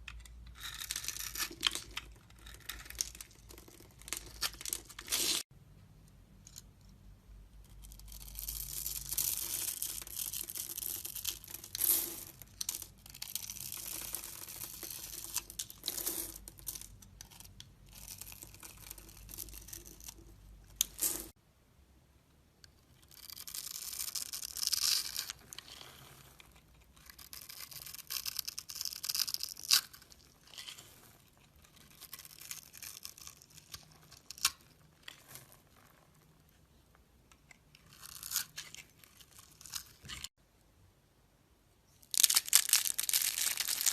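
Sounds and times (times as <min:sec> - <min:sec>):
blade carving soap: 0:23.1 - 0:30.8.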